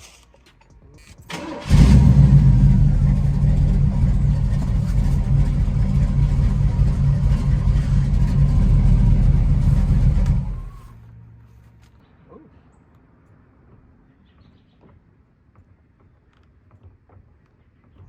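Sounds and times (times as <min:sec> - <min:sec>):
car engine starting and running: 0:00.9 - 0:11.8.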